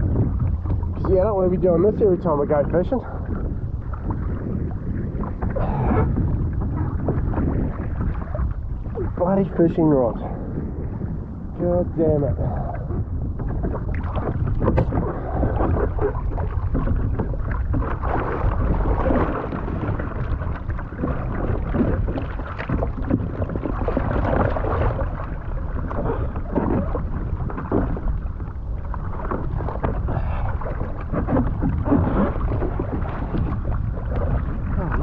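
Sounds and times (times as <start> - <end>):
heavy low rumble: 0.0 - 35.0
sea water sloshing and splashing: 0.0 - 35.0.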